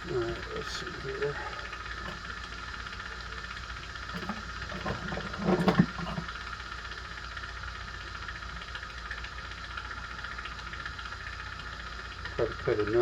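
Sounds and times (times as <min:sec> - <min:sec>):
bench equipment humming: 0:00.0 - 0:13.0
handling noise: 0:02.0 - 0:02.6, 0:04.1 - 0:06.3.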